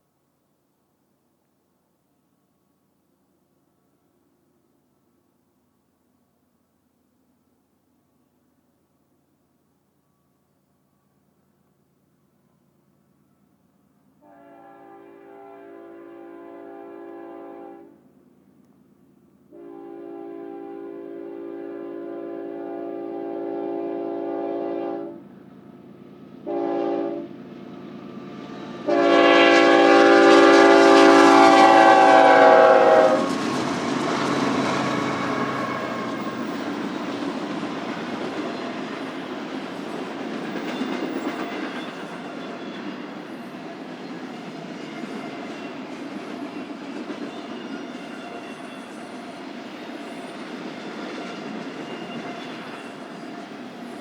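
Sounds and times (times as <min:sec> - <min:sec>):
locomotive horn blasts: 0:14.2 - 0:18.0, 0:19.5 - 0:25.2, 0:26.5 - 0:27.3, 0:28.8 - 0:33.3
train wheels clacking on rails: 0:32.8 - 0:54.0.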